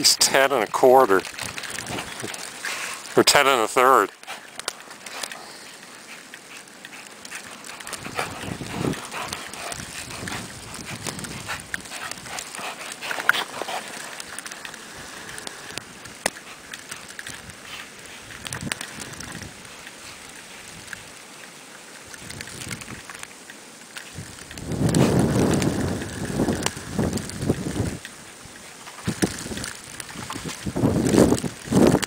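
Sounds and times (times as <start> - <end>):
dogs playing: 0.5 - 3.2, 4.1 - 21.4.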